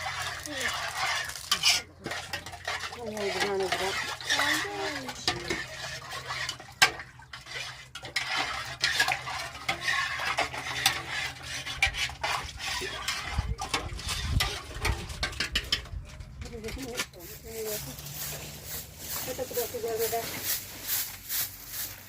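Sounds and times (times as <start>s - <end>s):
metal utensil stirring in pot: 0.0s - 21.7s.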